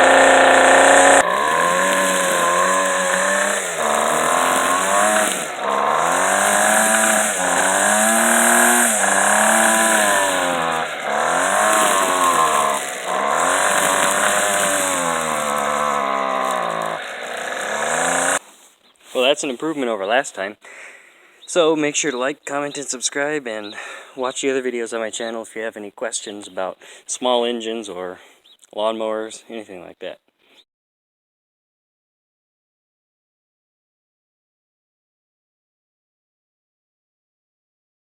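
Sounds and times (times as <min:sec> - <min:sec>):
weed eater engine revving: 0:00.0 - 0:18.6.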